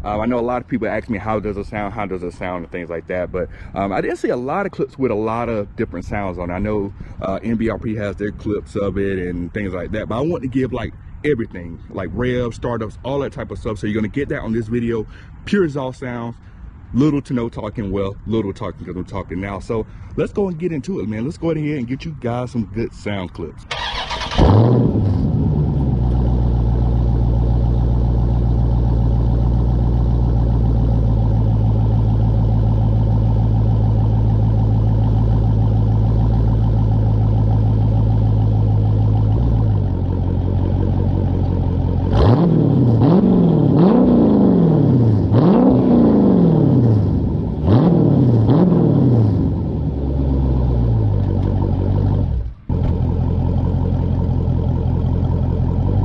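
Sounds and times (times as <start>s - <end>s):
car engine idling: 0.0s - 56.0s
engine revving: 23.7s - 56.0s.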